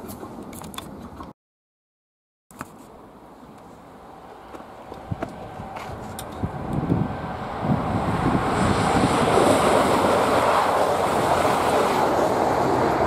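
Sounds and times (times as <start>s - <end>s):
passenger train passing at speed: 3.8s - 13.0s.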